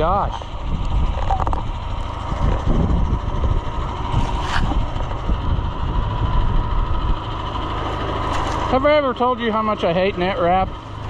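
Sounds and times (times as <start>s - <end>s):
wind gusting on microphone: 0.0s - 7.5s
tractor engine running: 0.0s - 11.0s.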